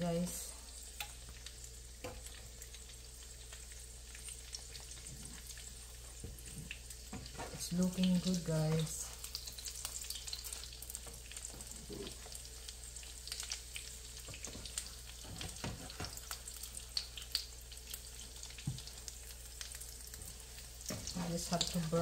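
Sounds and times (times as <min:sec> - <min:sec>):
omelette sizzling in frying pan: 0:00.0 - 0:22.0
spatula scraping pan: 0:06.6 - 0:07.9, 0:20.9 - 0:22.0.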